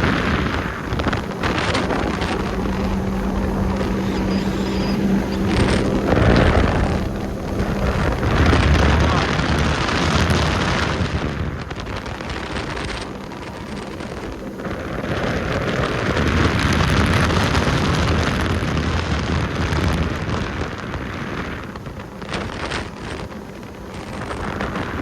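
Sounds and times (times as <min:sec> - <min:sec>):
vehicle rumble: 0:00.0 - 0:19.1
wind buffeting microphone: 0:00.0 - 0:25.0.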